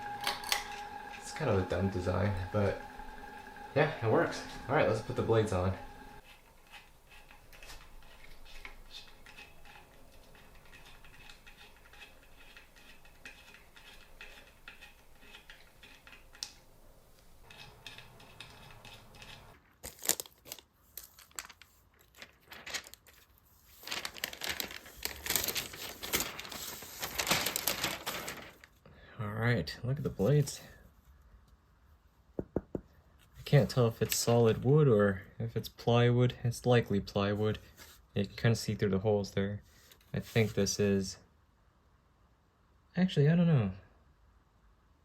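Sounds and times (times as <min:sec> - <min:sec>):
packaging crinkling and tearing: 0:19.2 - 0:28.8.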